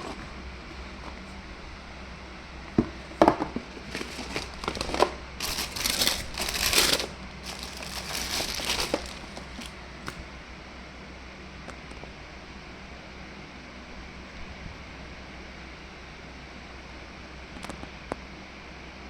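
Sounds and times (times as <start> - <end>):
packaging crinkling and rustling: 3.2 - 9.8.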